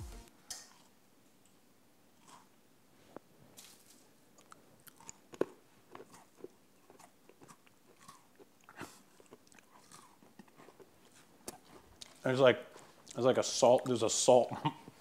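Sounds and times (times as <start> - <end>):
person chewing cookie: 0.6 - 1.0, 2.1 - 2.6, 4.3 - 13.2.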